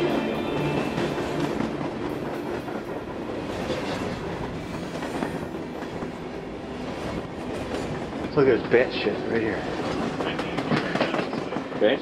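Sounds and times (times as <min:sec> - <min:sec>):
train rumbling on rails: 0:00.0 - 0:12.0
clicks of train wheels: 0:09.7 - 0:12.0.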